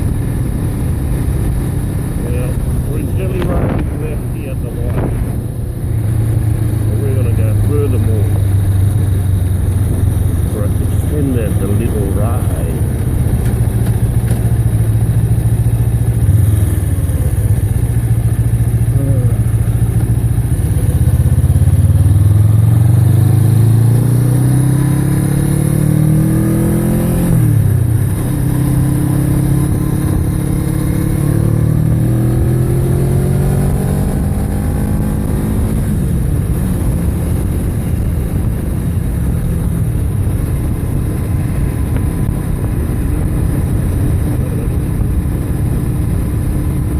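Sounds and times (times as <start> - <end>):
wind rush: 0.0 - 16.6
motorcycle engine revving: 0.0 - 46.9.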